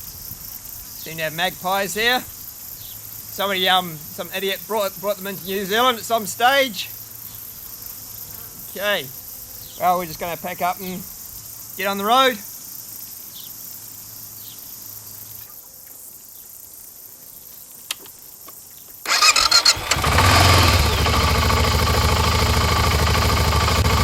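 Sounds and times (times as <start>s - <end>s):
faint high hiss: 0.0s - 20.0s
motorcycle engine starting and running: 19.1s - 24.0s.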